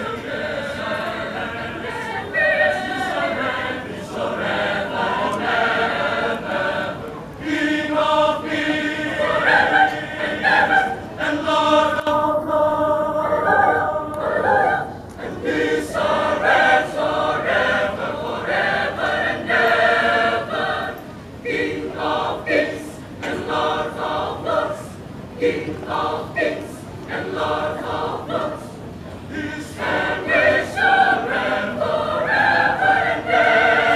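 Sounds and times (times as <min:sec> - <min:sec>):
choir singing: 0:00.0 - 0:33.9.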